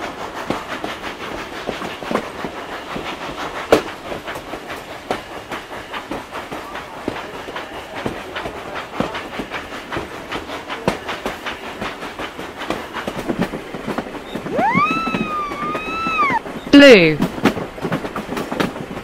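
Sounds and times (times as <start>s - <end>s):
train wheels clickety-clack: 0.0s - 19.0s
gliding pitched tone: 14.4s - 16.4s.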